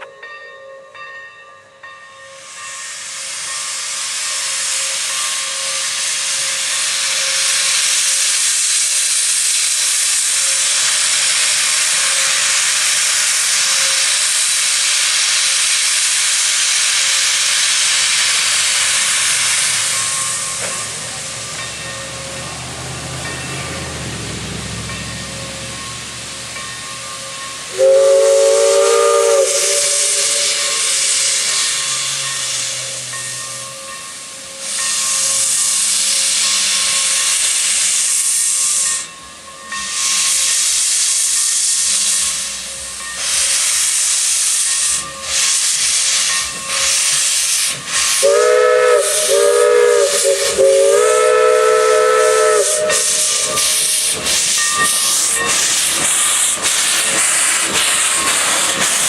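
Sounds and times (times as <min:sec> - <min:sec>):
steam hissing in bursts: 0:02.4 - 0:59.0
steam whistle blowing: 0:27.7 - 0:31.7, 0:47.9 - 0:56.6.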